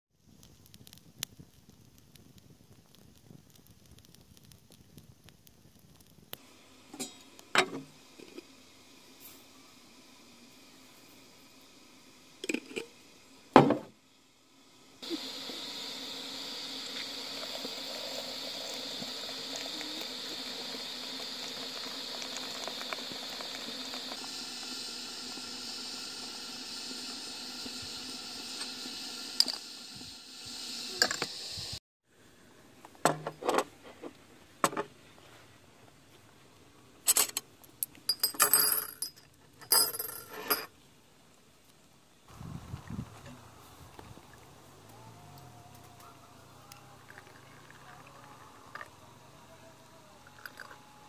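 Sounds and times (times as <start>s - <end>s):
water running with hiss: 5.2s - 31.8s, 42.3s - 51.0s.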